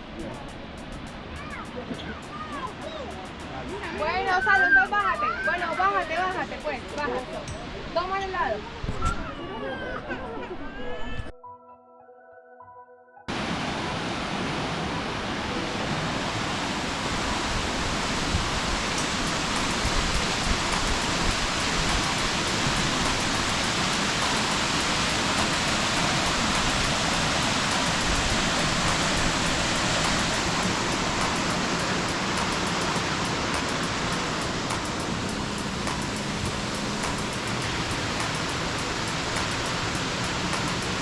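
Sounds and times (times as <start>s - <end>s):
waterfall roaring: 13.3s - 41.0s.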